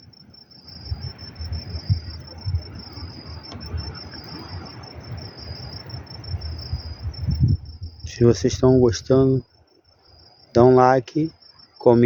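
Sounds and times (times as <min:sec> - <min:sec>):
crickets chirping: 0:00.0 - 0:12.0
low rumbling and bumps: 0:00.8 - 0:04.0, 0:06.3 - 0:09.3.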